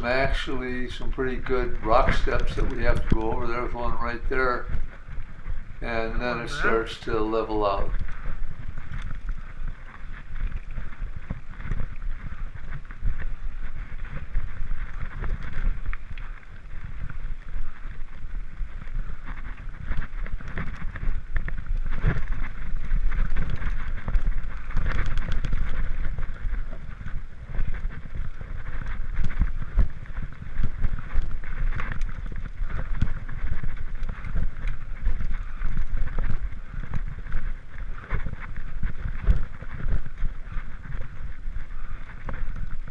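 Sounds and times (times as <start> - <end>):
mountain bike rattling over rocks: 0.0 - 42.9
wind rumbling on microphone: 0.0 - 42.9.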